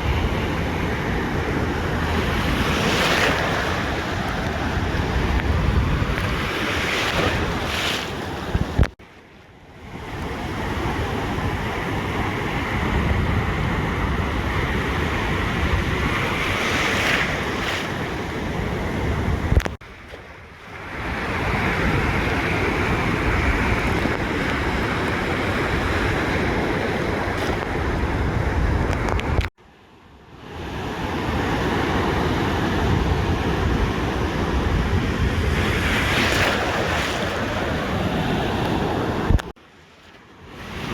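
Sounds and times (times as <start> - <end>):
wind buffeting microphone: 0.0 - 9.0, 10.0 - 29.5, 32.0 - 39.5
ocean surf on a beach: 0.0 - 40.9
click: 19.5 - 19.8, 28.9 - 29.5, 39.3 - 39.5.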